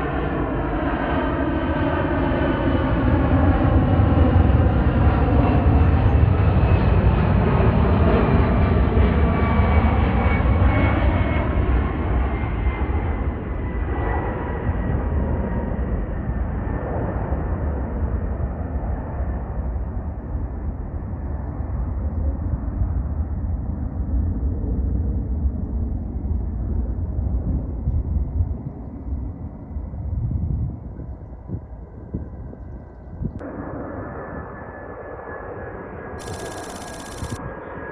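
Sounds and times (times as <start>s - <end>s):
jet airliner passing by: 0.0s - 22.0s, 33.4s - 37.9s
rapid high buzz: 36.2s - 37.4s
thin steady whine: 36.2s - 37.4s.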